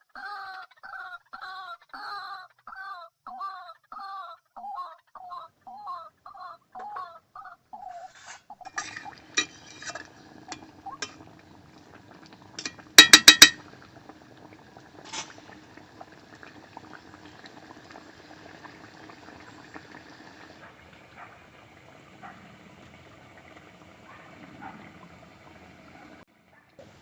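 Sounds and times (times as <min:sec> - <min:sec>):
gravy bubbling in a pot: 0:08.6 - 0:27.0
utensil clinks: 0:08.7 - 0:11.2, 0:12.6 - 0:13.6
sharp metal taps: 0:12.6 - 0:13.6.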